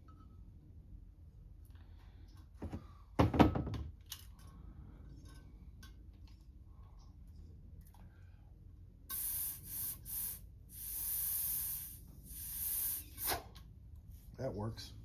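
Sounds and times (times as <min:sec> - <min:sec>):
spray nozzle hissing blasts: 0:09.1 - 0:13.5.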